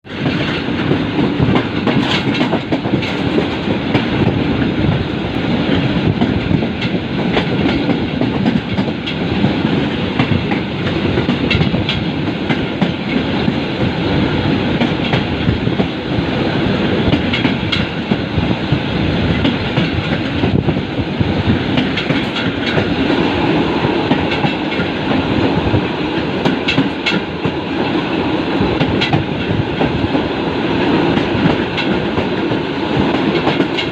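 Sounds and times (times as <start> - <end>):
train rumbling along track: 0.0 - 33.9
wheels clacking over rail joints: 0.1 - 4.4, 5.7 - 13.6, 17.0 - 18.3, 21.7 - 27.9, 28.7 - 33.9.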